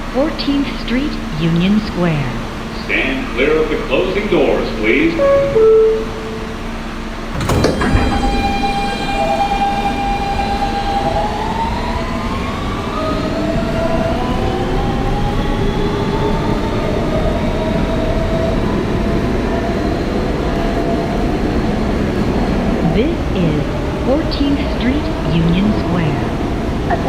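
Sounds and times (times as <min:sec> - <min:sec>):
wheels rumbling on track: 0:00.0 - 0:27.0
train motor whine: 0:00.8 - 0:27.0
train doors thudding shut: 0:07.3 - 0:11.7.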